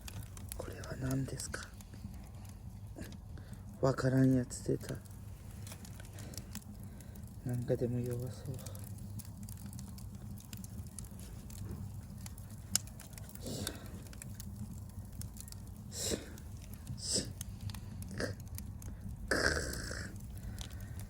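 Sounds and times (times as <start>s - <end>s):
campfire crackling: 0.0s - 21.0s
fire pops: 0.0s - 21.0s
low steady rumble: 0.0s - 21.0s
rustling breathy noises: 5.0s - 7.4s, 11.1s - 14.4s, 15.0s - 21.0s.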